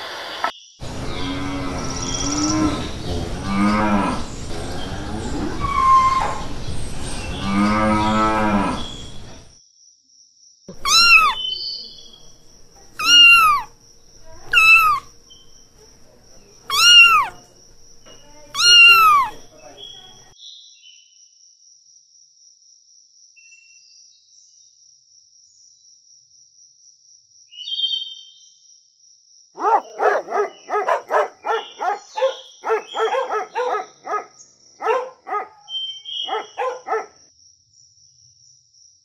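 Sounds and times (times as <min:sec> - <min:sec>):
brief high squeak: 0:10.8 - 0:11.5, 0:13.0 - 0:13.7, 0:14.3 - 0:15.1, 0:16.7 - 0:17.4, 0:18.1 - 0:19.4
puppies barking and yipping: 0:10.8 - 0:11.5, 0:12.1 - 0:15.1, 0:16.6 - 0:20.3, 0:29.6 - 0:34.2, 0:34.8 - 0:35.6, 0:36.3 - 0:37.1.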